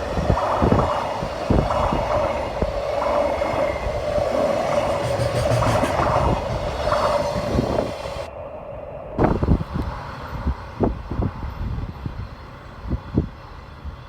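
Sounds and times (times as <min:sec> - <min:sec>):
freight train passing: 0:00.0 - 0:14.0
sharp knocks: 0:04.8 - 0:07.2.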